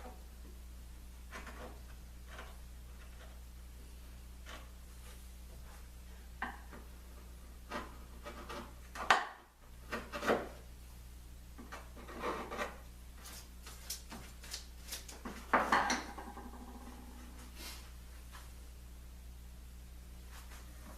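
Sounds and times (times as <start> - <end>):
scraping and rubbing wood: 1.2 - 3.5, 4.4 - 10.7, 11.6 - 17.8.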